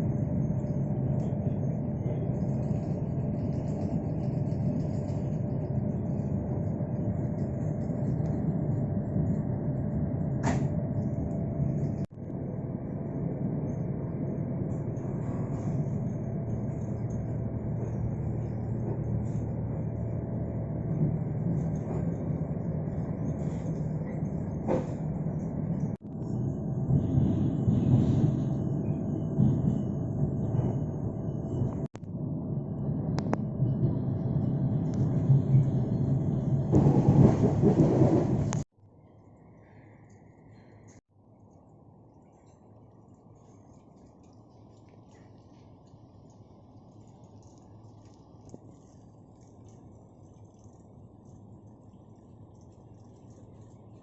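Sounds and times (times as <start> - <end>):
faint steady hum: 0.0 - 37.8, 38.5 - 54.0
train rumbling on rails: 0.0 - 38.7.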